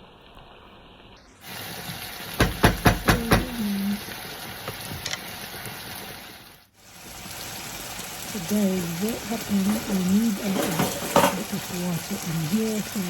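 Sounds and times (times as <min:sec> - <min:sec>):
stew sizzling in a pot: 0:01.2 - 0:13.0
sharp knocks: 0:02.4 - 0:03.6.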